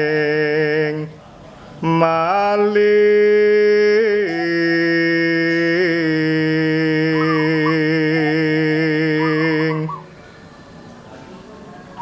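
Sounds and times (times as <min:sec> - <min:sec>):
man singing slow chant: 0:00.0 - 0:01.2, 0:01.8 - 0:10.1.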